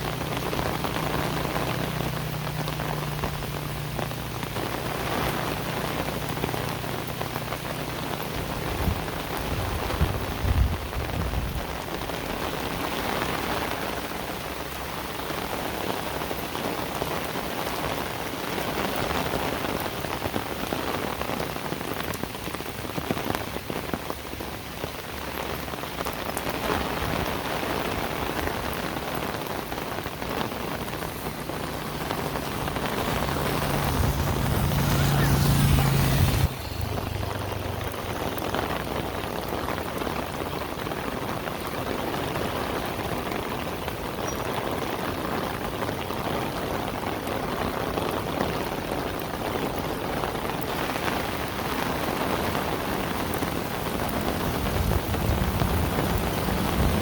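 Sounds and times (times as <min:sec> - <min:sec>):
low engine hum: 0:00.0 - 0:11.5, 0:29.1 - 0:39.5
heavy rain: 0:00.0 - 0:57.0.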